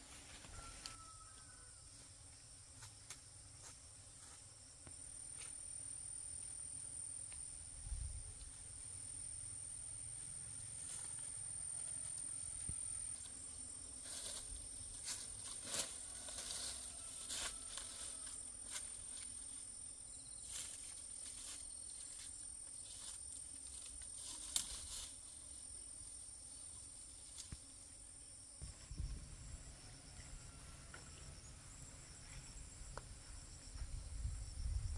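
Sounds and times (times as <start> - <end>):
high-pitched insect drone: 0.2 - 34.9
rustles and crackling clicks: 22.9 - 25.1.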